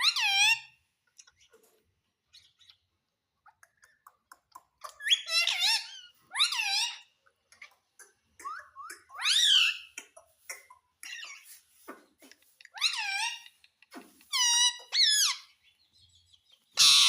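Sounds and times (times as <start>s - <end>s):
parakeet calling: 0.0s - 1.5s, 4.8s - 7.8s, 8.4s - 10.0s, 14.3s - 15.8s, 16.4s - 17.0s.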